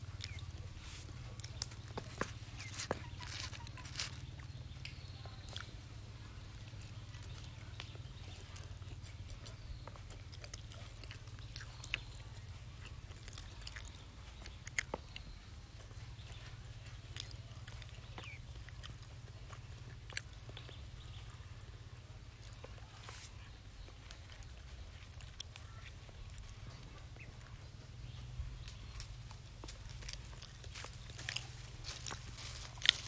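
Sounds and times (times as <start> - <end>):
chewing and mouth sounds: 0.0 - 33.0
steady low rumble: 0.0 - 33.0.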